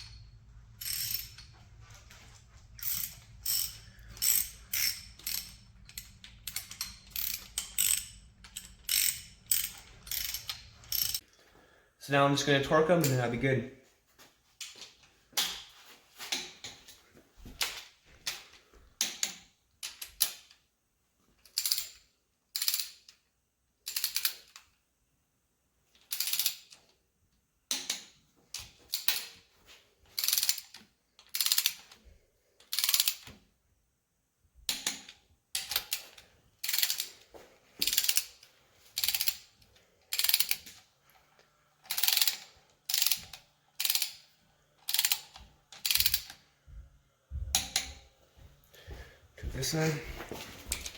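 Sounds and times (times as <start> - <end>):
torque wrench ratcheting: 0.0 - 1.5, 2.7 - 11.2, 30.2 - 31.9, 32.7 - 33.3, 35.6 - 37.1, 37.8 - 38.4, 39.0 - 39.5, 40.1 - 40.8, 41.8 - 46.4.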